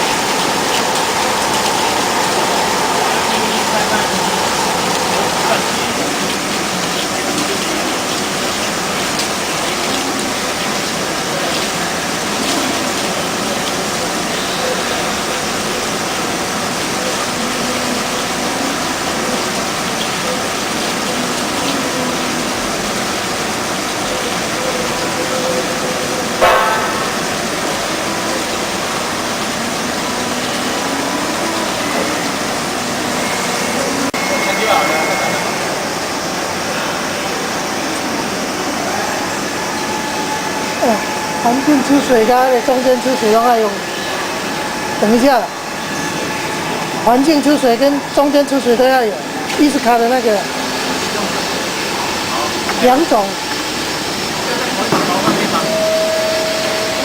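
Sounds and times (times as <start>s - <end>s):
drilling machine hissing and gushing: 0.0s - 57.0s
sharp knock: 26.4s - 27.4s.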